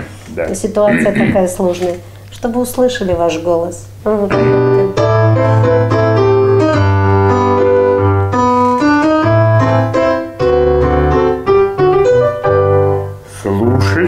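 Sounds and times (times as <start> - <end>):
piano chords over bass line: 4.2 - 14.0.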